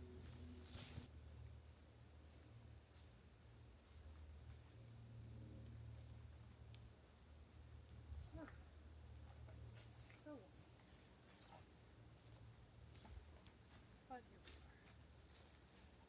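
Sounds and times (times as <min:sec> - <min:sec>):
high-pitched insect trill: 0:00.0 - 0:16.0.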